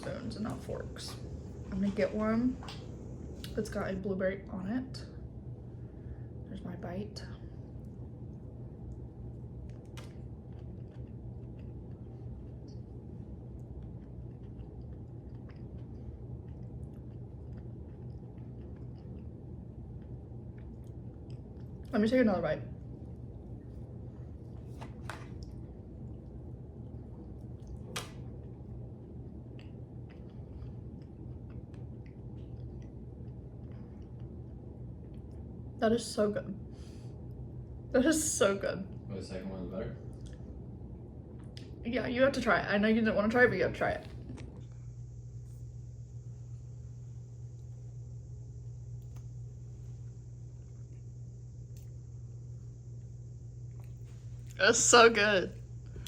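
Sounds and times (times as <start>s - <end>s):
low hum: 0.0s - 56.0s
chewing and utensil clicks: 13.5s - 21.9s, 29.5s - 34.3s.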